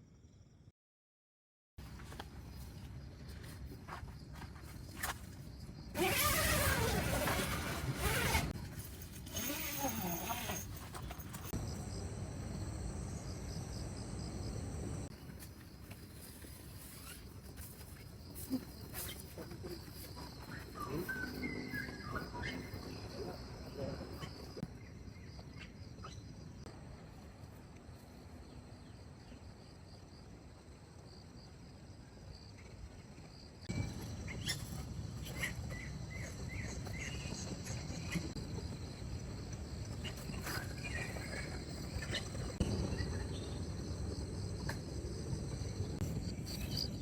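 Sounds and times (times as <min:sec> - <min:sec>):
crickets chirring: 0:02.1 - 0:26.8, 0:28.0 - 0:47.0
insects trilling: 0:33.2 - 0:47.0.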